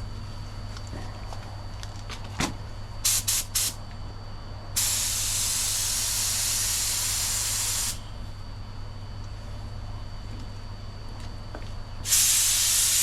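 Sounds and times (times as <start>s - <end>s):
paint spray gun spraying: 3.1s - 3.8s, 4.8s - 8.0s, 12.0s - 13.0s.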